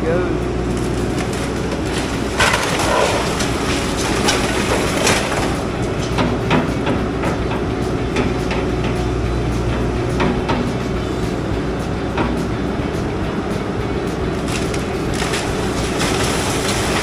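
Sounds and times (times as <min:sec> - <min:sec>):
excavator engine drone: 0:00.0 - 0:17.0
structure cracking and crashing: 0:00.7 - 0:07.0, 0:14.4 - 0:17.0.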